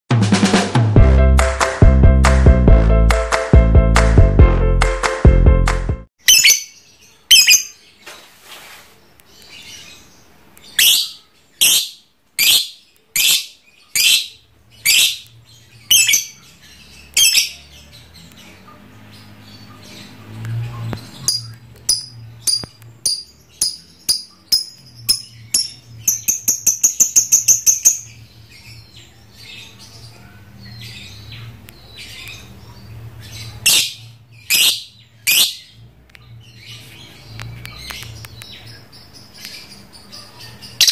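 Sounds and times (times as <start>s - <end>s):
lovebird shrill chirping: 6.2s - 7.8s, 10.7s - 17.7s, 21.2s - 28.2s, 33.4s - 35.7s.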